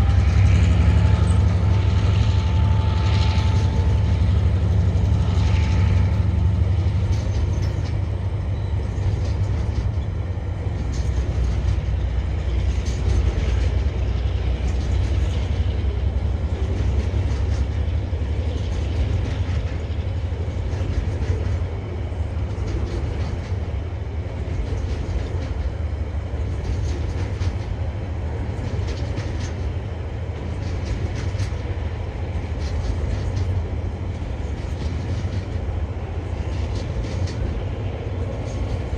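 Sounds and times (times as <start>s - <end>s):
freight wagons rumbling: 0.0s - 38.9s
wheel clicks over rail joints: 6.8s - 8.2s, 8.8s - 15.9s, 26.4s - 27.8s, 28.4s - 38.9s.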